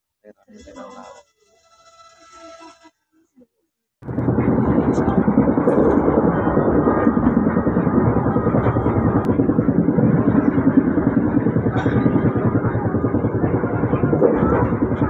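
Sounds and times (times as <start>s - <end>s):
train wheels rumbling on rail: 4.1s - 15.0s.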